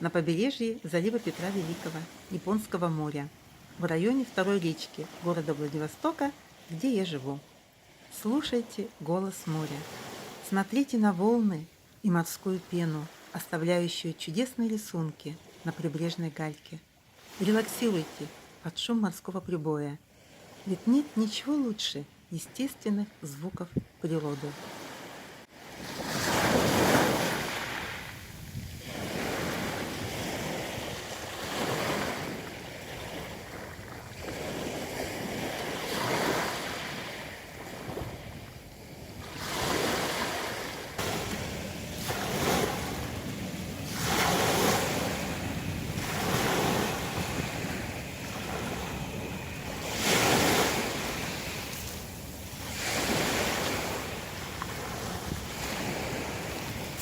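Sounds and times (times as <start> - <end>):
surf breaking on pebble beach: 25.8 - 38.2, 39.0 - 57.0.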